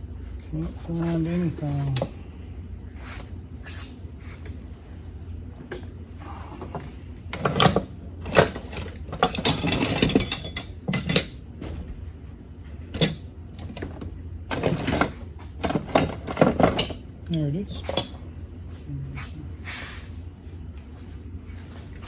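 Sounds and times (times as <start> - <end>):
metal hand tools clattering: 7.4 - 11.4, 14.5 - 17.1.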